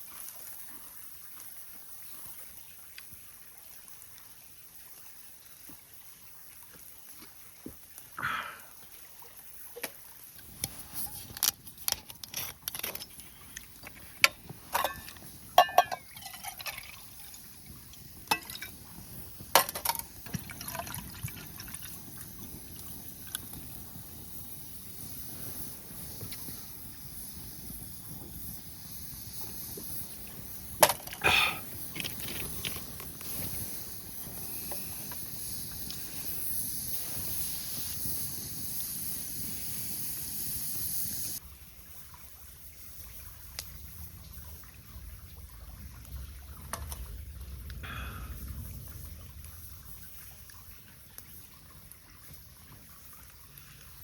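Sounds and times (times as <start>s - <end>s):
steady hiss: 0.0s - 54.0s
liquid pouring: 9.7s - 24.7s, 29.4s - 36.6s, 41.4s - 54.0s
camp gear clinks and knocks: 10.6s - 16.6s.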